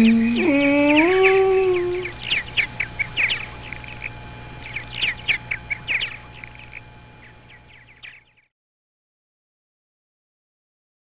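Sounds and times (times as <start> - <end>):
birds chirping: 0.0 - 8.5
faint steady hum: 0.0 - 8.5.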